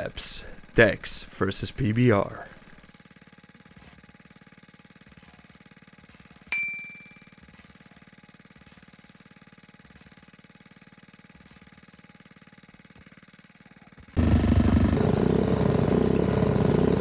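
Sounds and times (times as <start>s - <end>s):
faint small engine idling: 0.0s - 17.0s
small motorcycle engine under throttle: 14.2s - 17.0s.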